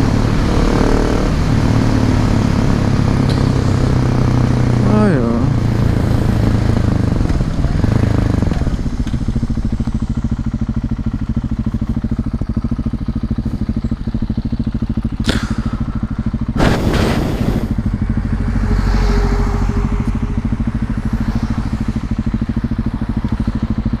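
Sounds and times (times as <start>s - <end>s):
motorcycle engine running: 0.0s - 24.0s
short rushes of noise: 16.6s - 17.8s.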